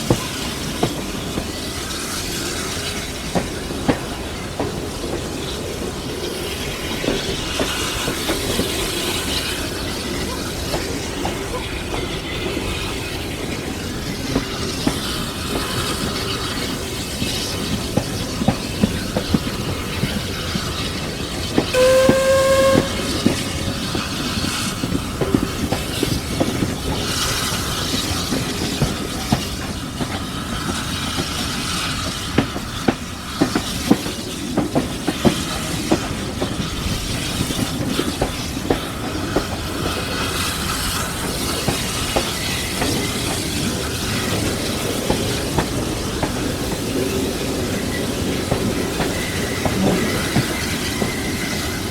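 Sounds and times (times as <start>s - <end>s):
train wheels clicking over rail joints: 0.0s - 51.9s
steam whistle: 21.7s - 24.0s.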